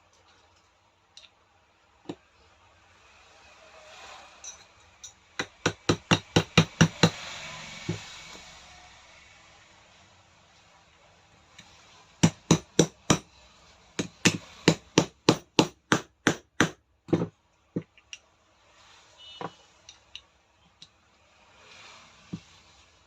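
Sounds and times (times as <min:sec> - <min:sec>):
hammer tapping metal part: 0:04.5 - 0:07.2, 0:12.2 - 0:13.3, 0:14.0 - 0:18.2.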